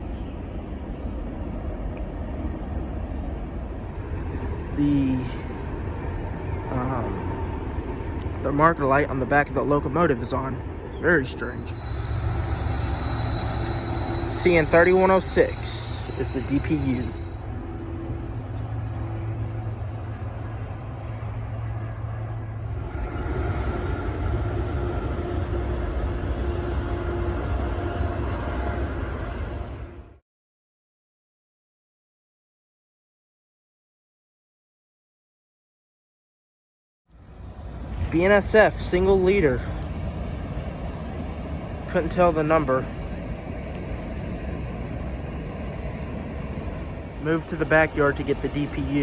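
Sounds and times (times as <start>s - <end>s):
diesel locomotive droning: 0.0s - 30.2s, 37.1s - 49.0s
freight train rumbling: 0.0s - 30.2s, 37.2s - 49.0s.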